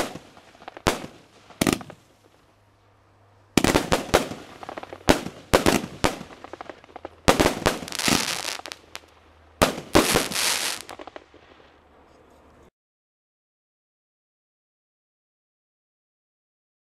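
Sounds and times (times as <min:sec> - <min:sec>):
firework bangs: 0:00.0 - 0:02.4, 0:03.6 - 0:11.6
firework crackling: 0:00.0 - 0:02.5, 0:03.6 - 0:12.0.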